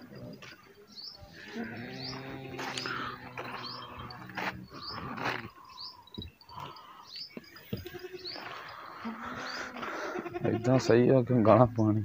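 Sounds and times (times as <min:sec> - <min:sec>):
small bird chirping: 0:00.9 - 0:09.8.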